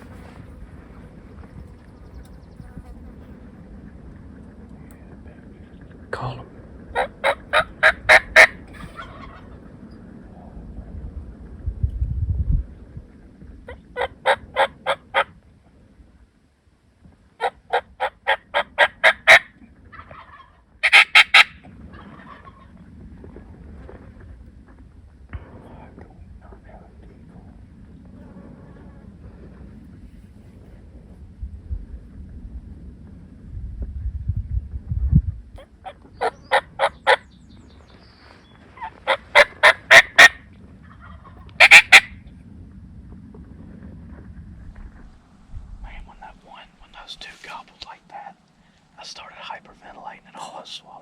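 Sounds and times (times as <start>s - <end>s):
turkey yelping: 7.0s - 9.5s, 13.7s - 15.3s, 17.4s - 22.7s, 35.6s - 37.2s, 38.8s - 40.4s, 41.0s - 42.2s.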